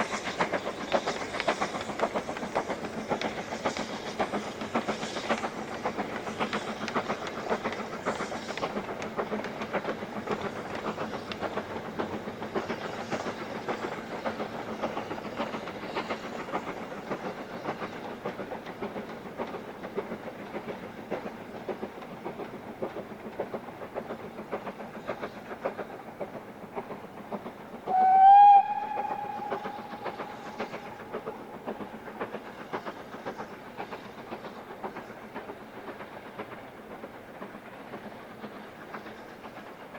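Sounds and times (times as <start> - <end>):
steam train running: 0.0 - 39.9
steam whistle blast: 27.9 - 30.2.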